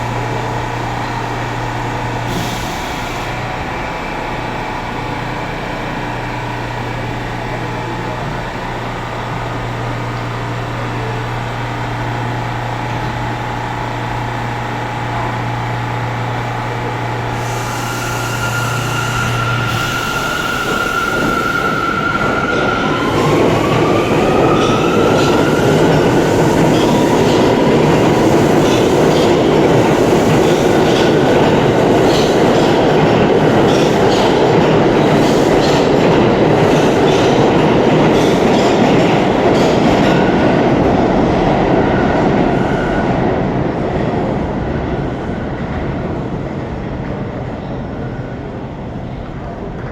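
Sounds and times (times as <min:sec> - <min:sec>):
train motor whine: 0:00.0 - 0:32.7
train wheels clattering: 0:17.4 - 0:41.5.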